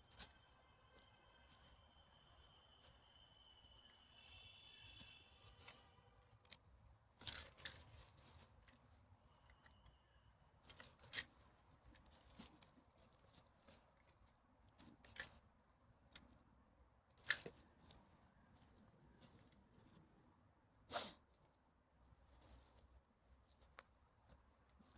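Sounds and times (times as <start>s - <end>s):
rustles and crinkles of litter: 0.0s - 10.0s, 10.6s - 16.4s, 22.1s - 24.9s.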